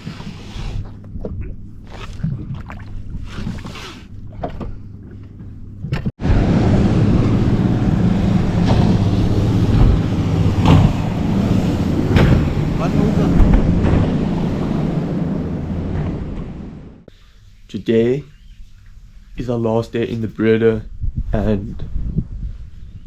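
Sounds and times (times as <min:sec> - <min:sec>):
boat motor hum: 0:00.0 - 0:17.1
wind rushing: 0:06.2 - 0:17.1.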